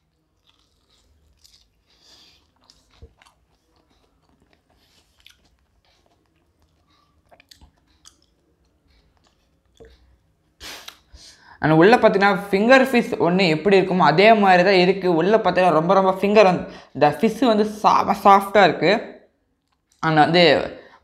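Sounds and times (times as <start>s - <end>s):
chewing crunchy food: 0.0s - 11.1s, 19.5s - 20.0s.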